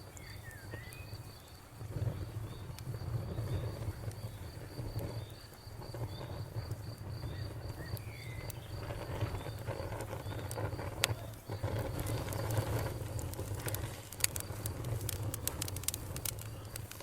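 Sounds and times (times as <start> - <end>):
bird chirps: 0.0 - 1.4, 7.2 - 10.5
campfire crackling: 0.0 - 17.0
fire popping: 0.0 - 17.0.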